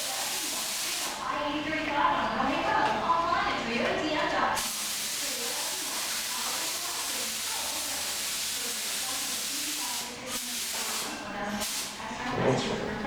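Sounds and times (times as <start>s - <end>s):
paint spray gun hissing: 0.0s - 1.2s, 4.6s - 12.0s.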